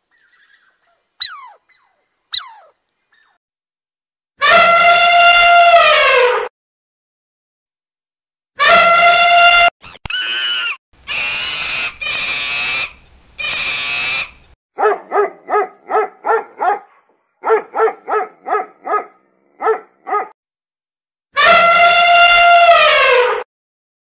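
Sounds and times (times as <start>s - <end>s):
puppy long drawn-out calls: 1.2s - 1.6s, 2.3s - 2.8s, 14.8s - 20.4s
puppy yipping: 1.2s - 2.8s, 14.8s - 20.4s.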